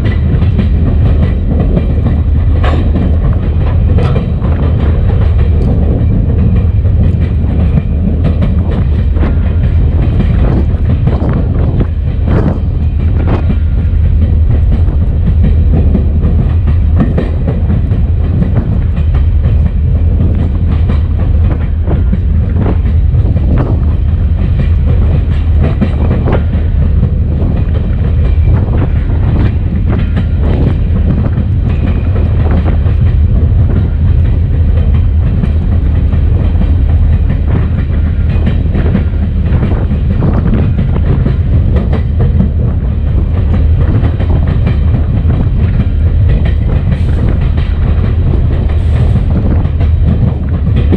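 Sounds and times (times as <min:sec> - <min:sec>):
wheels clicking over rail joints: 0:00.0 - 0:12.2
diesel locomotive rumbling: 0:00.0 - 0:50.9.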